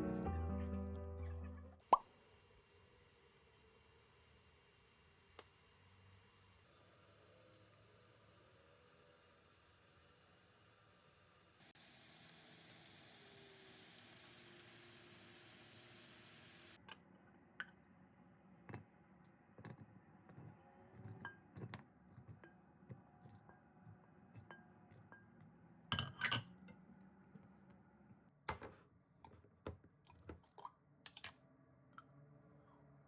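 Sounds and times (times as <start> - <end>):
dishes and utensils clinking: 25.9 - 26.6
dishes clattering: 25.9 - 26.6.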